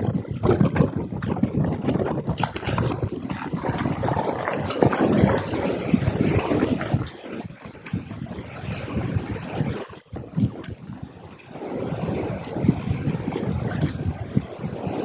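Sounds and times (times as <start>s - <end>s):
wind gusting against microphone: 0.0s - 15.0s.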